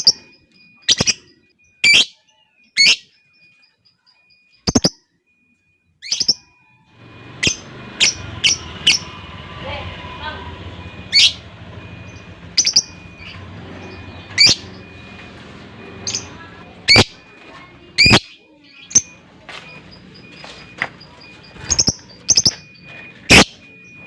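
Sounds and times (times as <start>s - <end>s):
lovebird shrill calls: 1.8s - 2.1s.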